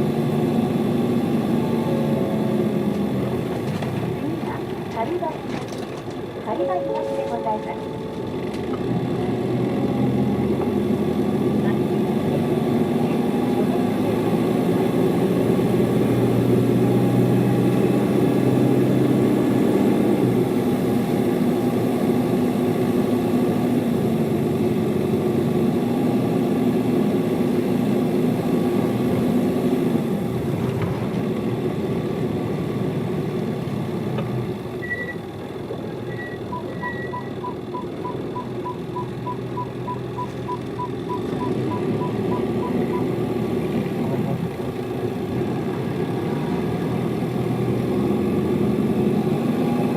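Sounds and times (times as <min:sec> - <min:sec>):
bus diesel engine pulling: 0:00.0 - 0:49.9
short high beeps: 0:06.5 - 0:08.4, 0:34.8 - 0:35.2, 0:36.0 - 0:43.2.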